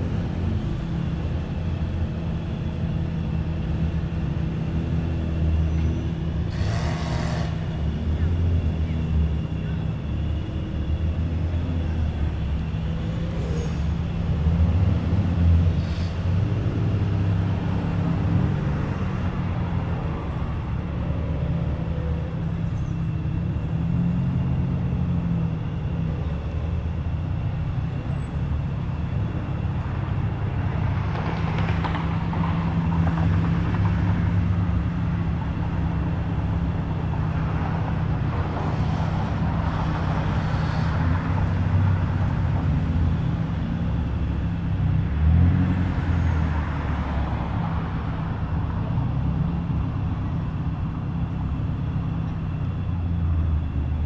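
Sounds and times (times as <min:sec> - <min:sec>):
car engines idling: 0:00.0 - 0:31.0.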